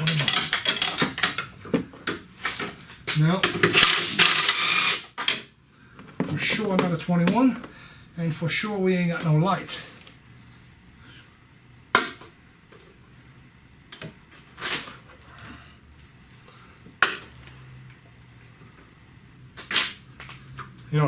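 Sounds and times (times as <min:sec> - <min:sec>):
metal hand tools clinking: 0:00.0 - 0:01.4.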